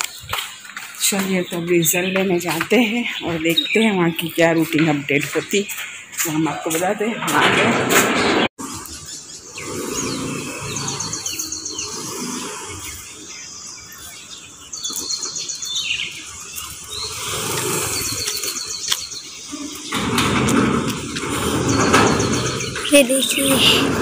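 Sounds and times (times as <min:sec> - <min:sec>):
motor scooter pulling out: 0:07.4 - 0:13.3, 0:16.4 - 0:24.0.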